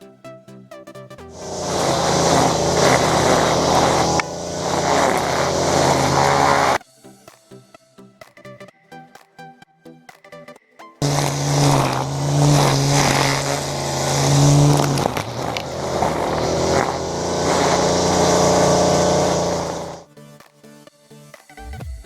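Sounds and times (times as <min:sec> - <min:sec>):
small petrol engine running: 0:01.3 - 0:06.8, 0:11.0 - 0:20.0.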